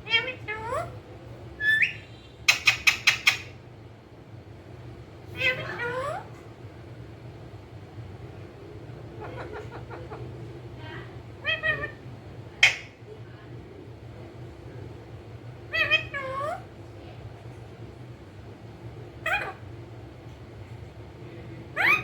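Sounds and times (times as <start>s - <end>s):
parrot calling: 0.0s - 1.0s, 1.6s - 3.6s, 5.3s - 6.4s, 9.0s - 10.5s, 11.4s - 13.0s, 15.7s - 16.8s, 19.2s - 19.7s, 21.8s - 22.0s
steady low hum: 0.0s - 22.0s.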